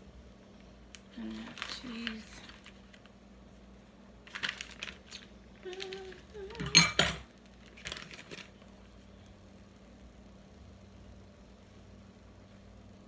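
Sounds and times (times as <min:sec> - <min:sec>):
dishes and utensils clattering: 0:06.5 - 0:07.3.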